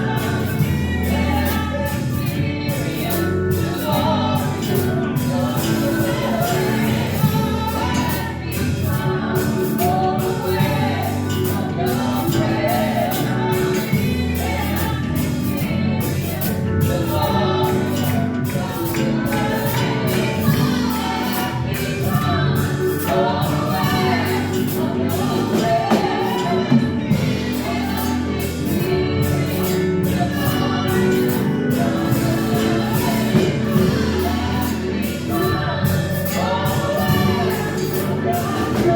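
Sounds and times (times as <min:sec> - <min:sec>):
band playing: 0:00.0 - 0:38.9
group singing gospel song: 0:00.0 - 0:38.9.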